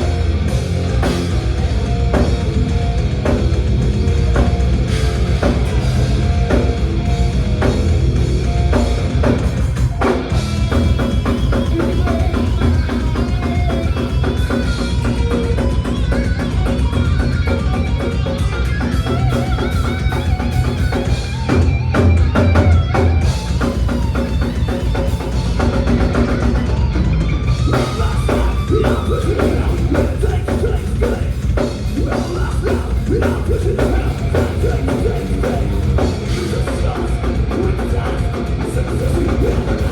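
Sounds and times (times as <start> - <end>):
live metal band playing: 0.0 - 39.9
pounding bass drum: 0.0 - 39.9.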